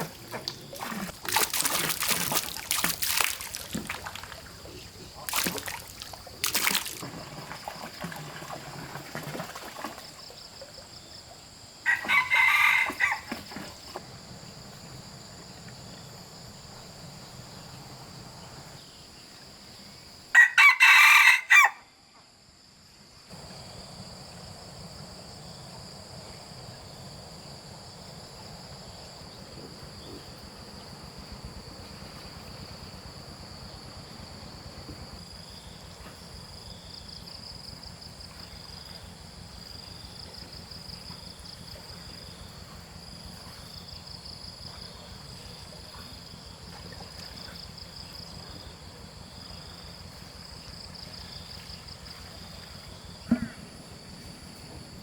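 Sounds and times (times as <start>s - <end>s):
rooster crowing: 11.8s - 13.4s, 20.4s - 21.9s.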